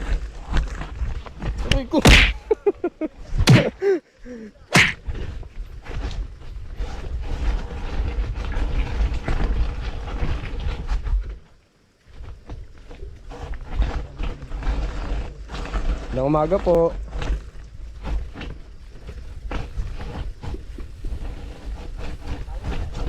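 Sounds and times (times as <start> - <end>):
wind buffeting microphone: 4.6 - 11.5, 12.1 - 23.0.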